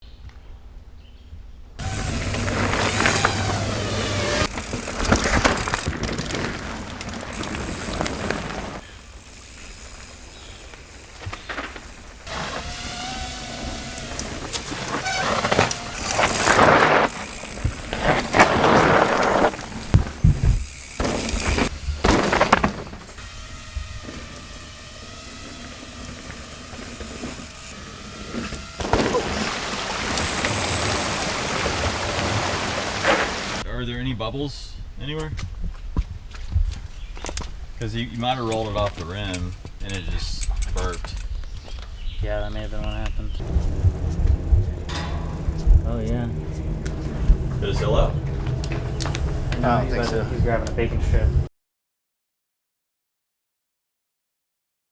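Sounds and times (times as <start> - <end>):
tyre losing air: 1.8 - 33.6, 43.4 - 51.5
mountain bike tyre and frame noise: 1.8 - 33.7, 35.4 - 51.5.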